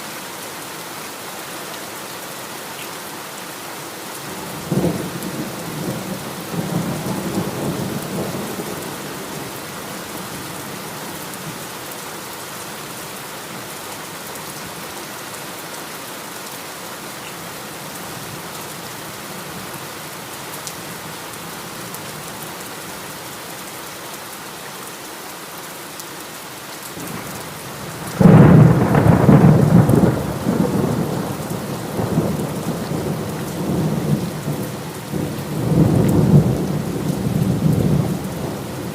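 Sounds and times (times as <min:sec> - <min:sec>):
heavy rain falling: 0:00.0 - 0:38.9
low thunder rumbling: 0:27.8 - 0:38.9.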